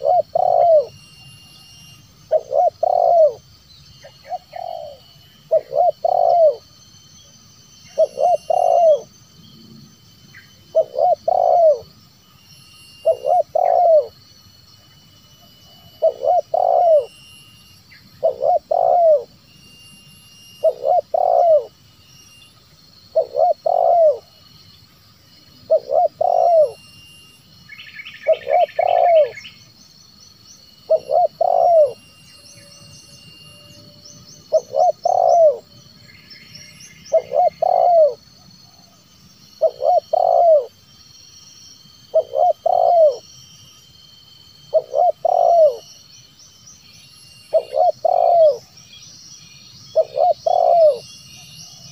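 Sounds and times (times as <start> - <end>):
dove cooing: 0.0 - 1.0, 2.3 - 3.4, 4.0 - 6.7, 7.9 - 9.1, 10.7 - 11.9, 13.0 - 14.1, 15.6 - 17.1, 18.2 - 19.3, 20.6 - 21.7, 23.1 - 24.3, 25.7 - 26.8, 28.2 - 29.4, 30.9 - 32.0, 34.4 - 35.7, 37.1 - 39.0, 39.6 - 40.7, 42.1 - 43.2, 44.7 - 45.9, 47.5 - 48.7, 49.9 - 51.0
small birds chirping: 0.0 - 9.6, 10.3 - 15.0, 15.7 - 24.8, 25.4 - 43.7, 44.6 - 51.9
bird trill: 0.0 - 51.9.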